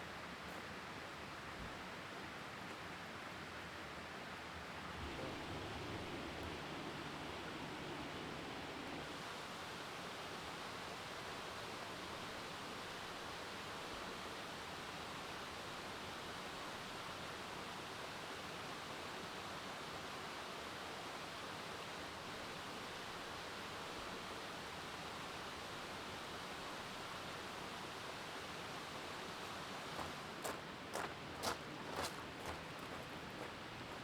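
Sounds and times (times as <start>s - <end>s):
mountain stream rushing: 4.9s - 14.5s, 23.6s - 34.0s.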